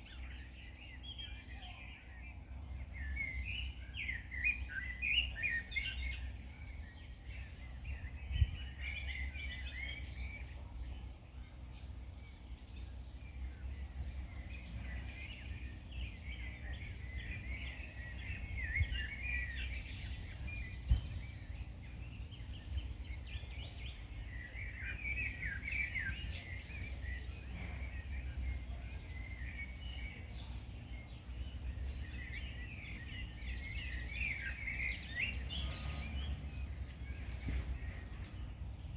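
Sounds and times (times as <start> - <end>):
small songbirds chirping: 0.0 - 38.9
low rumble: 10.6 - 24.8.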